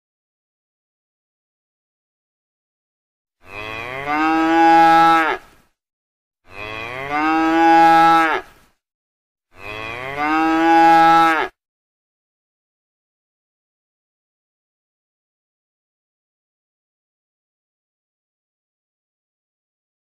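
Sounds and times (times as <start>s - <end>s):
cow mooing: 3.4s - 5.4s, 6.5s - 8.5s, 9.6s - 11.6s.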